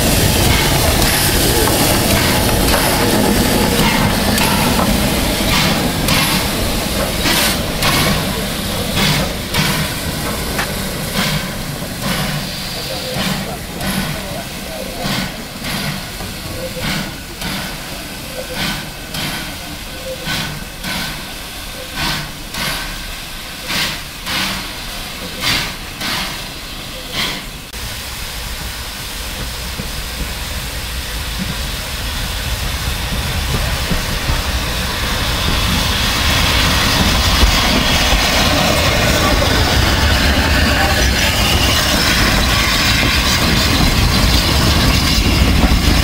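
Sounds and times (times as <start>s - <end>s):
steam locomotive exhaust beats: 0.0s - 46.0s
train rushing and rumbling: 0.0s - 46.0s.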